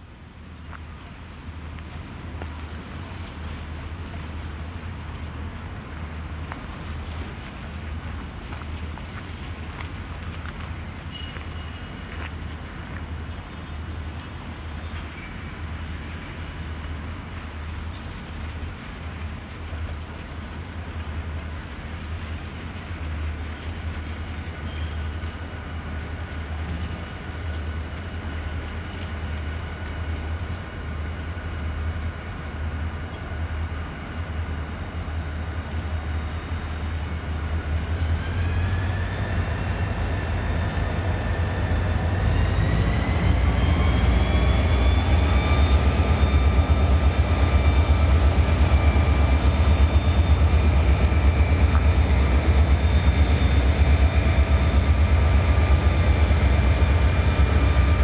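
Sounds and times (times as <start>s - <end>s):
locomotive engine rumble: 0.0s - 58.0s
rising whine: 35.7s - 58.0s.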